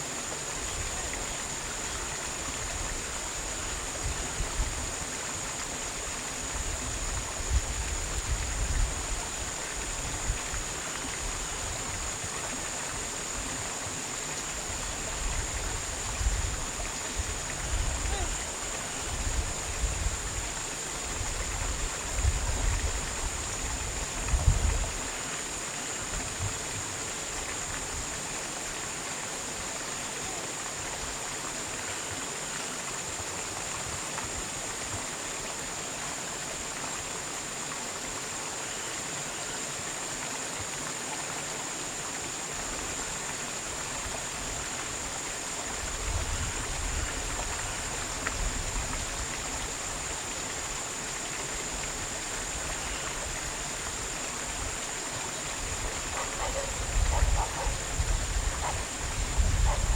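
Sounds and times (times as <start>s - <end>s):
rushing water noise: 0.0s - 59.9s
wind buffeting microphone: 21.1s - 25.1s, 55.6s - 59.9s.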